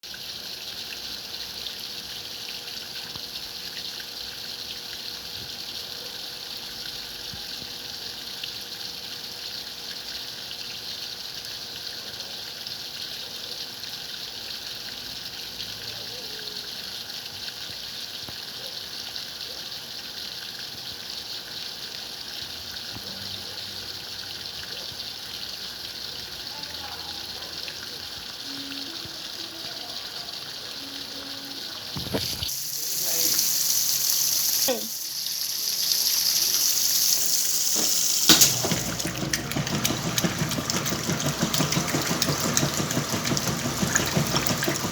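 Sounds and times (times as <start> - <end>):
water running into washing machine: 31.2 - 44.9.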